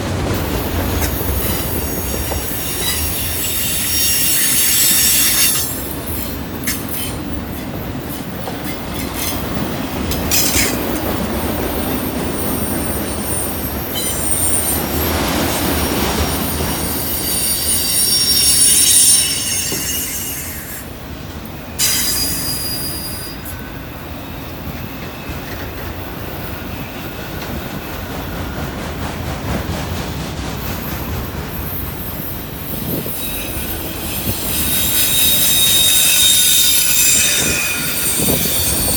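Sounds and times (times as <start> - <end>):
freight train rumbling: 0.0 - 38.9
train wheels squealing on rail: 0.4 - 21.0, 21.7 - 29.0, 30.6 - 38.9.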